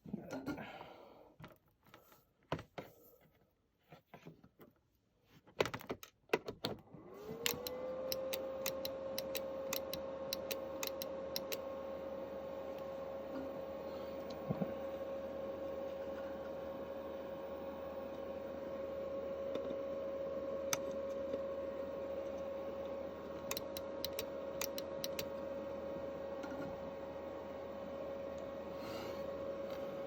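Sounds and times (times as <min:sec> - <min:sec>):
sharp clicks: 0:07.4 - 0:11.6, 0:23.5 - 0:25.3.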